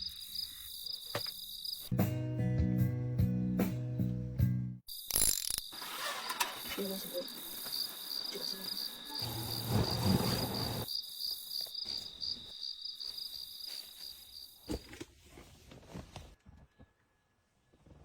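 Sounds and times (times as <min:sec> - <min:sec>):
insects chirring: 0:00.0 - 0:01.9, 0:04.9 - 0:14.7.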